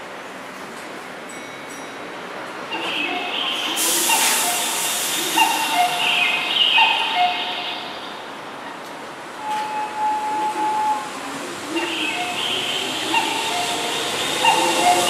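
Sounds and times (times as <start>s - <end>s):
electric train running slowly: 0.0s - 15.0s
high-pitched brake squeals: 2.7s - 7.9s, 9.4s - 11.2s, 11.8s - 15.0s.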